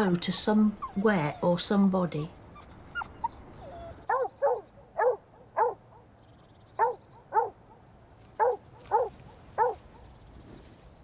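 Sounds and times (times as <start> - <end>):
dog barking: 4.1 - 5.8, 6.8 - 7.6, 8.4 - 10.0.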